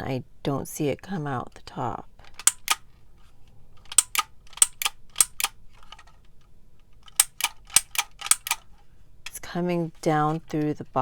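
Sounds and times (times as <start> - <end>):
label maker clicking: 2.3 - 2.8, 3.8 - 5.6, 7.1 - 8.7.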